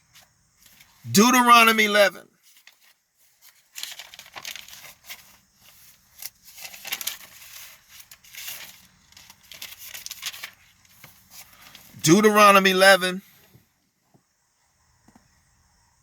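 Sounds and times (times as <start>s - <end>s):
thin paper pages rustling: 2.4s - 12.0s.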